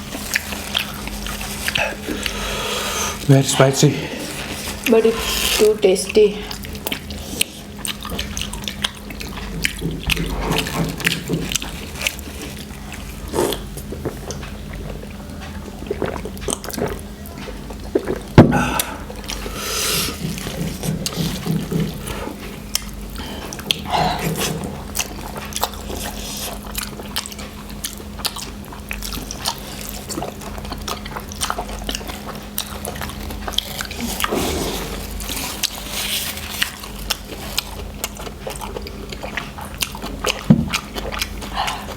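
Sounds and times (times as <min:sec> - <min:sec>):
steady low hum: 0:00.0 - 0:41.9
people slurping noodles: 0:00.4 - 0:07.8, 0:10.2 - 0:14.4, 0:15.8 - 0:17.1, 0:17.7 - 0:22.6, 0:23.2 - 0:24.9, 0:33.8 - 0:37.6.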